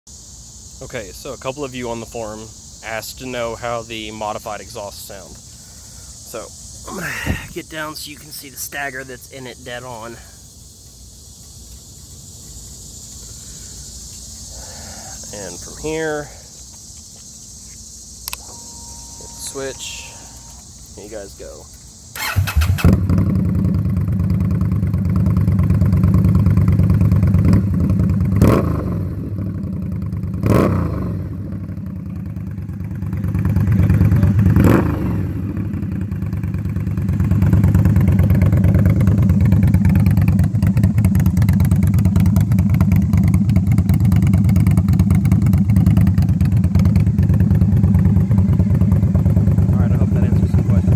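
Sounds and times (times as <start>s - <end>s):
motorcycle engine revving and idling: 22.1s - 50.9s.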